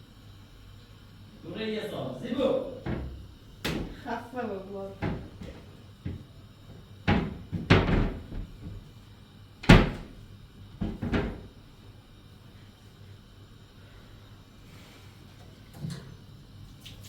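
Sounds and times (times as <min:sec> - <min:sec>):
sharp bangs and thumps: 0:07.0 - 0:08.8.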